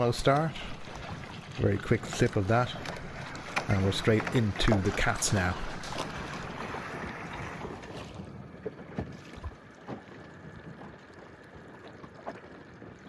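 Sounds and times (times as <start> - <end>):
water around small boat: 0.0 - 13.0
wind: 0.0 - 13.0.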